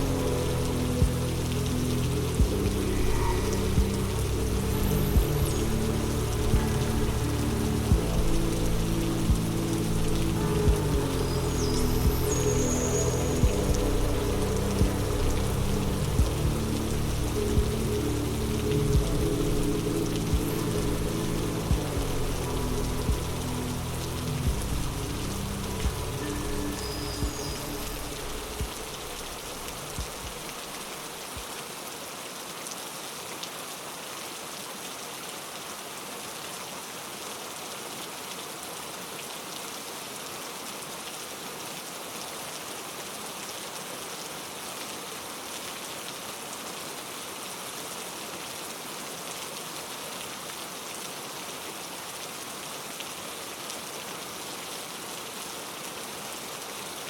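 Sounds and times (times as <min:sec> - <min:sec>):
low rumble: 0:00.0 - 0:30.9
steady rain falling: 0:00.0 - 0:57.0.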